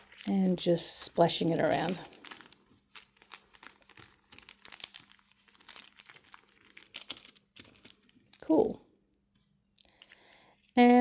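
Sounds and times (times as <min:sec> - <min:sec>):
paper crinkling: 0:00.0 - 0:08.6.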